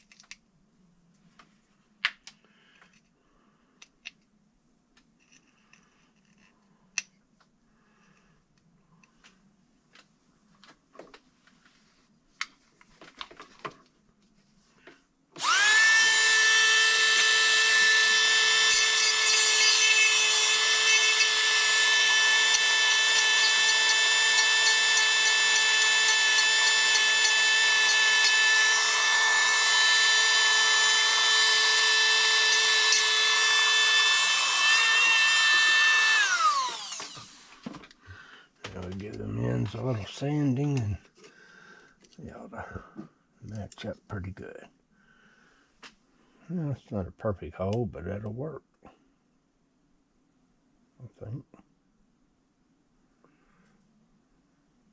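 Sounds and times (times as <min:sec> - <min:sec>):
rotary tool whining: 0:15.4 - 0:37.9.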